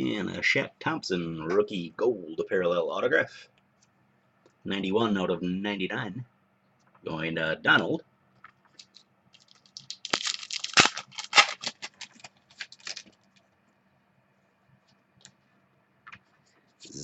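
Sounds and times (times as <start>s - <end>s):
foil wrapper crinkling: 8.8s - 13.4s.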